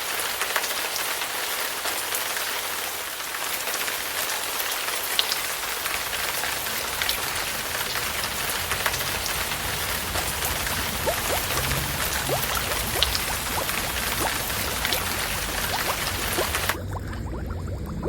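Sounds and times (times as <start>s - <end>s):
water falling onto a surface: 0.0s - 16.8s
water drips clicking: 4.0s - 18.0s
drops plinking in water: 11.0s - 18.0s.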